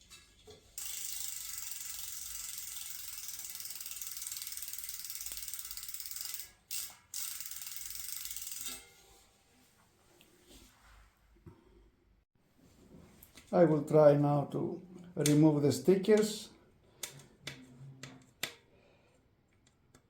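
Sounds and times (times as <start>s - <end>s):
bicycle freehub clicking: 0.8s - 8.8s.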